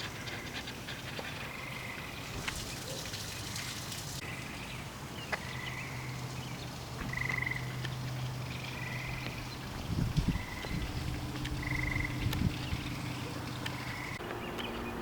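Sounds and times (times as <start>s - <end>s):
frogs trilling: 7.0s - 14.2s.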